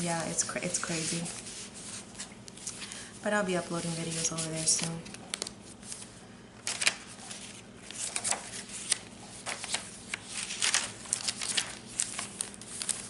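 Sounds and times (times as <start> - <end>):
paper pages rustling: 0.2 - 3.0, 3.7 - 13.0.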